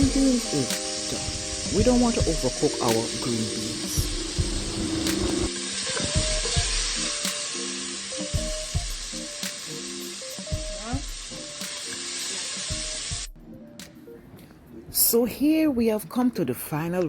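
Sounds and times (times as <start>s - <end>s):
green beans sizzling in a pan: 0.0s - 13.2s.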